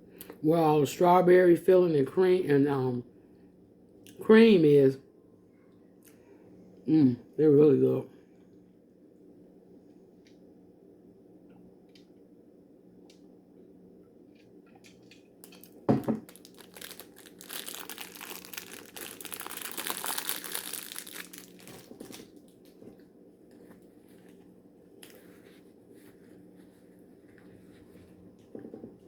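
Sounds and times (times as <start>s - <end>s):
plastic snack wrapper crinkling: 15.4s - 22.8s.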